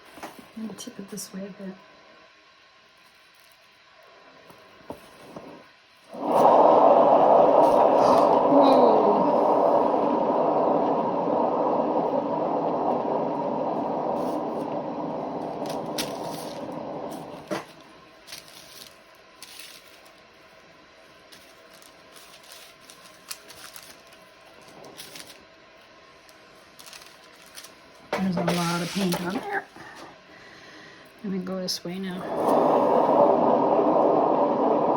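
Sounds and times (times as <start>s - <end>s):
spinner whirring: 6.1s - 20.0s.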